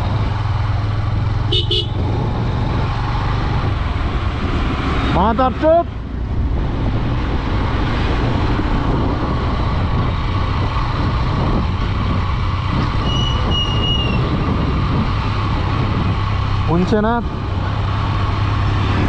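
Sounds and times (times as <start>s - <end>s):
motorcycle engine running: 0.0s - 19.0s
wind noise on microphone: 0.0s - 19.0s.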